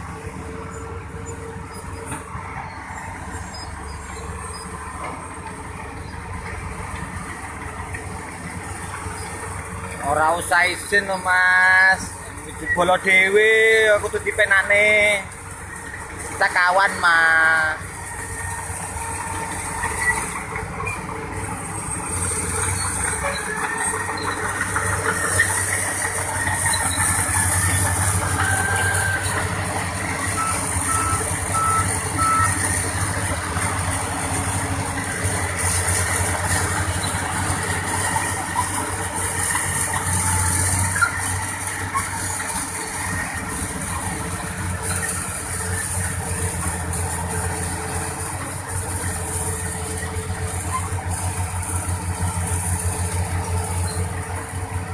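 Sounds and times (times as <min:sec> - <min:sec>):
excavator diesel engine running: 0:00.0 - 0:54.9
reversing alarm beeps: 0:30.3 - 0:32.6.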